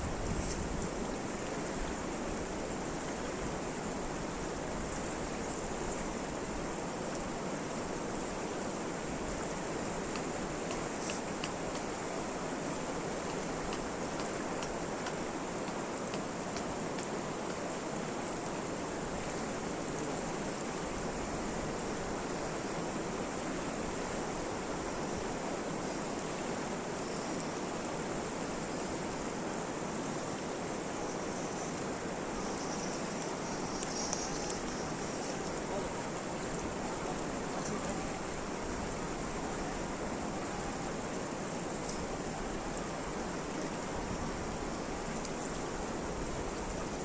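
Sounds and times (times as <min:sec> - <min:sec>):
water rushing: 0:00.0 - 0:47.0
faint ticks: 0:10.0 - 0:12.0, 0:13.2 - 0:17.6, 0:31.1 - 0:35.9, 0:41.7 - 0:42.1.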